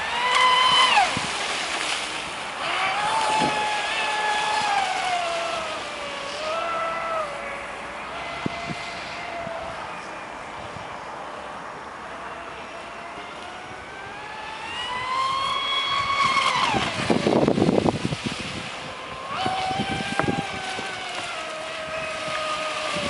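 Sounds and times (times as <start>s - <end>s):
rushing water and wind: 0.0s - 23.0s.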